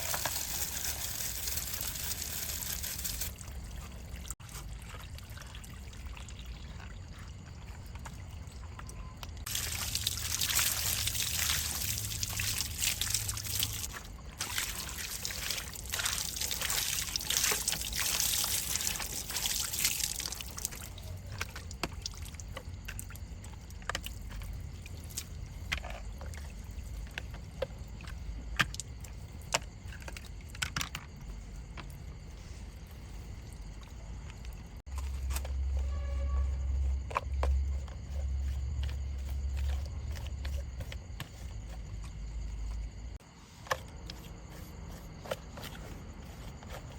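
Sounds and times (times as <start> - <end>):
water trickling: 0.0 - 27.2.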